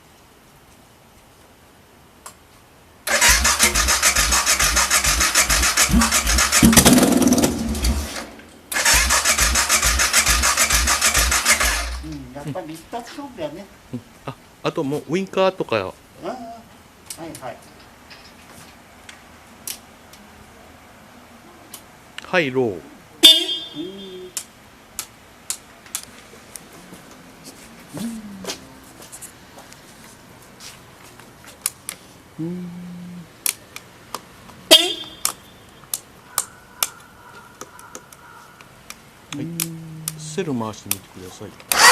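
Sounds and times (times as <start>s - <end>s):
electric starter cranking engine: 3.1s - 12.2s, 41.7s - 41.9s
short voice-like sound: 27.9s - 28.9s, 32.4s - 33.3s, 39.4s - 40.4s.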